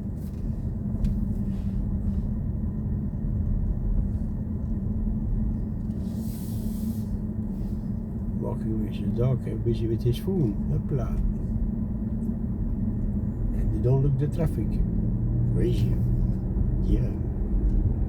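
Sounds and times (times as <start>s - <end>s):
road and tyre rumble: 0.0s - 18.0s
brief hiss: 6.2s - 7.1s.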